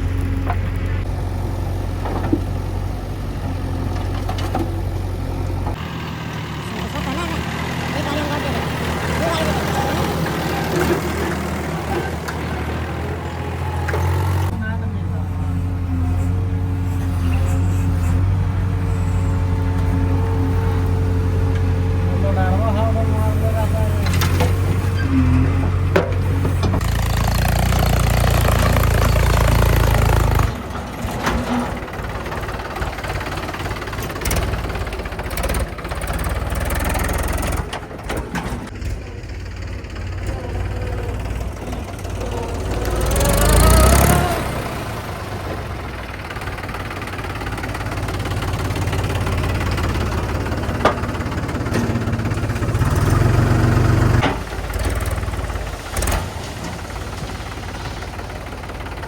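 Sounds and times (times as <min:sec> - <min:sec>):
diesel engines running: 0:00.0 - 0:59.0.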